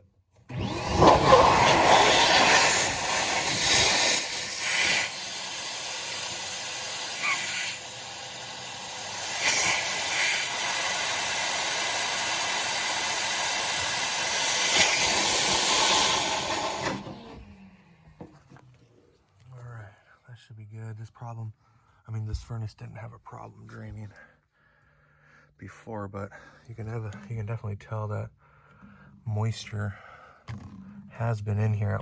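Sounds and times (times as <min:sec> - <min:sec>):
air blowing through drain hiss: 0:01.0 - 0:17.1.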